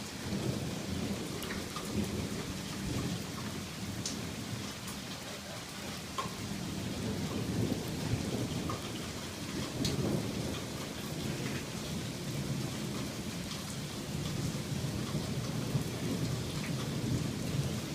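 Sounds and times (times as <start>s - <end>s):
rolling rumble of thunder: 0.0s - 17.9s
steady rain falling: 0.0s - 17.9s
drops ticking on a surface: 6.0s - 6.4s.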